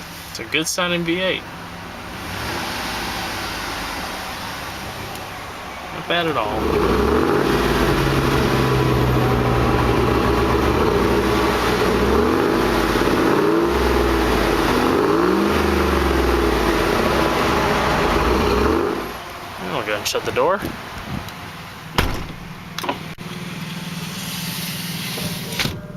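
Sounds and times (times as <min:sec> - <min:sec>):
engine running and revving: 0:02.0 - 0:05.3, 0:06.2 - 0:19.2.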